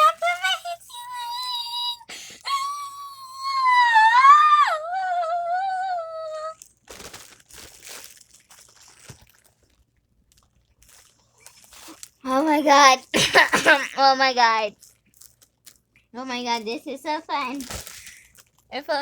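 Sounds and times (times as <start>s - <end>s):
girl's high helium voice: 0.0s - 6.6s, 12.2s - 14.8s, 16.2s - 17.8s, 18.7s - 19.0s
crinkling and rustling: 6.6s - 19.0s.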